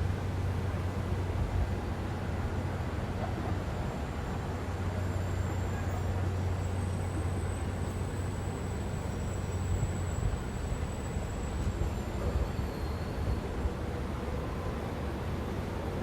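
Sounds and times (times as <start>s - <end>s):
rumble of street traffic: 0.0s - 16.0s
faint high whine: 3.8s - 14.9s.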